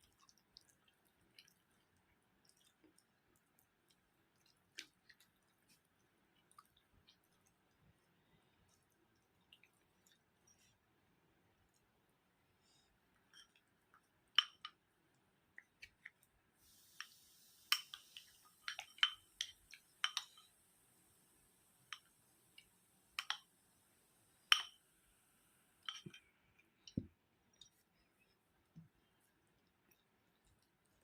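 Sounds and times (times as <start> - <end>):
faint steady hiss: 0.0 - 31.0
dishes and utensils clinking: 25.8 - 26.3.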